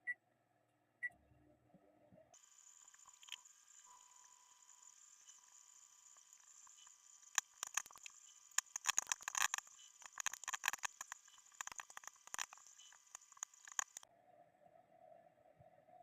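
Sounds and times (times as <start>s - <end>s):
popcorn popping: 7.3s - 14.0s.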